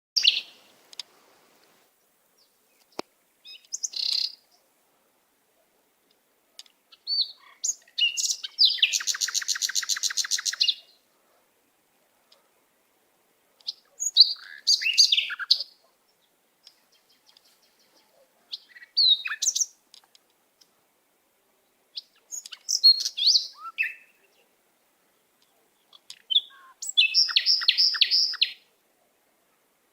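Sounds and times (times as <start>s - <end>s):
small birds chirping: 0.2s - 1.2s, 1.9s - 4.7s, 6.1s - 11.1s, 13.5s - 20.9s, 21.6s - 28.7s.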